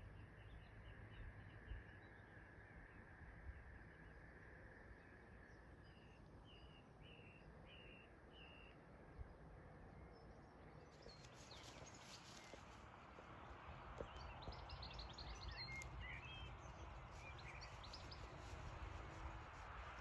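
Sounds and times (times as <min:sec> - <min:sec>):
bird chirps: 0:14.0 - 0:18.5.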